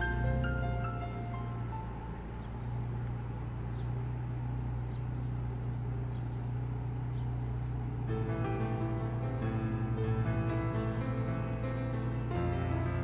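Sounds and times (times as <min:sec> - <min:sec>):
car engine hum: 0:00.0 - 0:13.0
faint road noise: 0:00.0 - 0:13.0
bird chirps: 0:01.8 - 0:02.8, 0:03.7 - 0:04.0, 0:04.8 - 0:05.4, 0:06.0 - 0:07.4.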